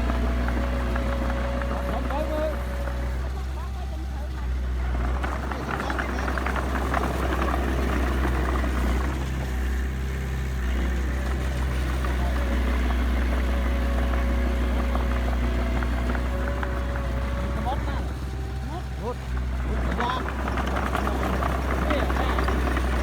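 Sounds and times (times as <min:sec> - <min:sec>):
heavy diesel engine rumbling: 0:00.0 - 0:23.0
clattering and rattling: 0:15.8 - 0:23.0.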